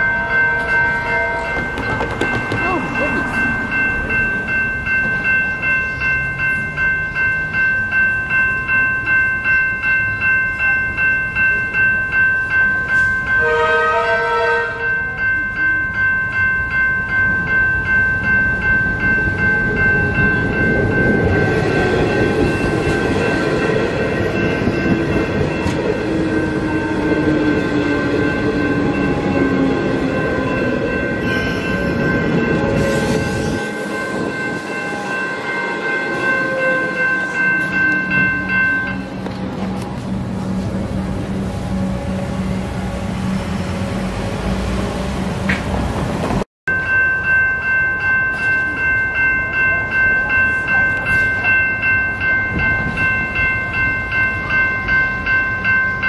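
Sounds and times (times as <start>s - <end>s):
level-crossing warning bells: 0.0s - 45.6s, 46.2s - 56.0s
train horn blast: 13.4s - 14.9s, 32.6s - 37.2s
train rumbling with falling whine: 18.5s - 46.4s.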